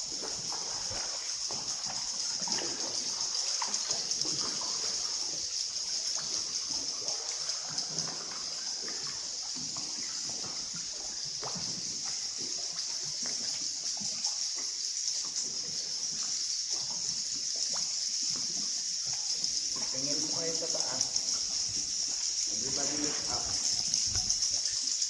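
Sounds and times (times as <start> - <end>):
water splashing and dripping: 0.0 - 25.0.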